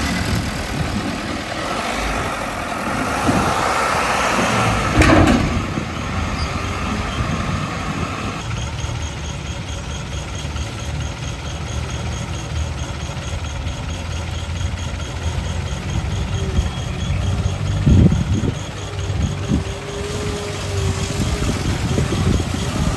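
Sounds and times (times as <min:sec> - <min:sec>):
diesel engine running at low revs: 0:00.0 - 0:22.9.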